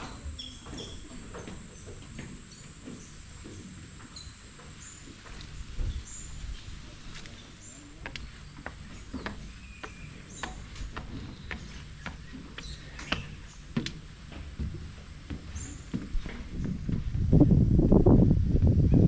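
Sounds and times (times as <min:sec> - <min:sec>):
high-pitched insect buzz: 0:00.0 - 0:10.6, 0:12.6 - 0:16.4
bird chirps: 0:00.0 - 0:13.7
footsteps on a path: 0:00.0 - 0:17.3.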